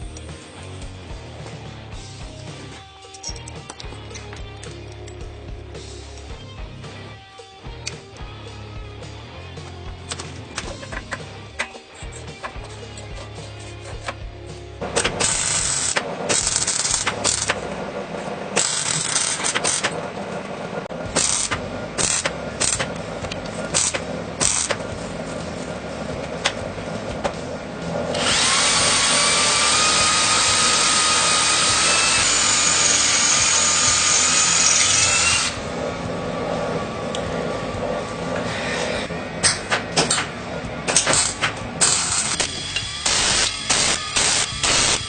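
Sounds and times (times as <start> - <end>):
power tool whining: 9.3 - 45.0.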